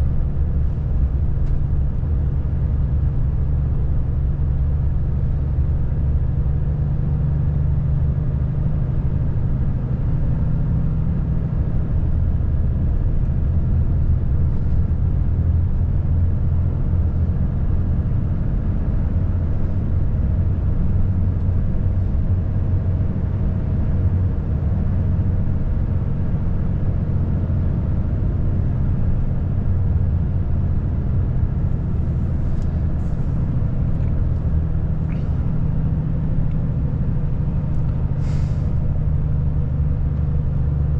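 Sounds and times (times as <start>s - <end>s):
truck diesel engine running: 11.2s - 40.9s.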